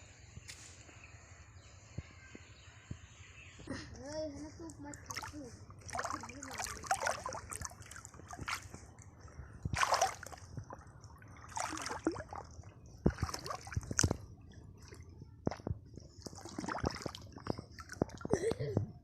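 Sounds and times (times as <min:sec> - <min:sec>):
shallow water splashing: 0:04.8 - 0:18.4.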